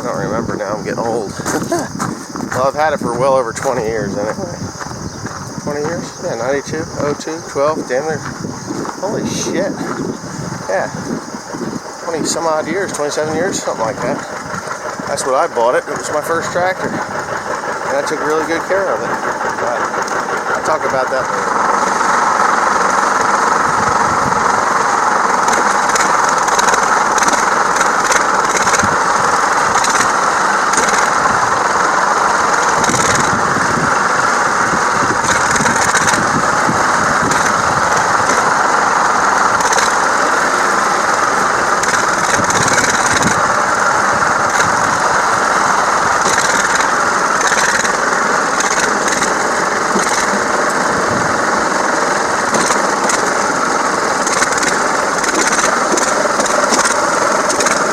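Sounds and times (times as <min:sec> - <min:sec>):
tractor engine running: 0:00.0 - 0:57.9
light rattles and clicks: 0:25.3 - 0:29.0, 0:41.7 - 0:43.6, 0:52.4 - 0:57.9.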